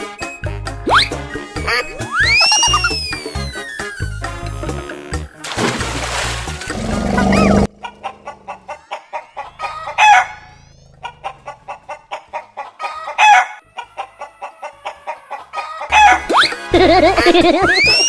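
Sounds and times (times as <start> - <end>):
chicken squawking: 0.9 - 4.4, 7.2 - 13.6, 17.6 - 18.0
chicken clucking: 7.6 - 16.3.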